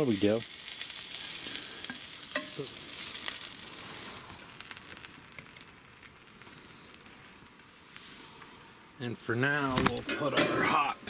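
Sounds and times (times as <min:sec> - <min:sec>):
fat sizzling in a skillet: 0:00.0 - 0:08.4.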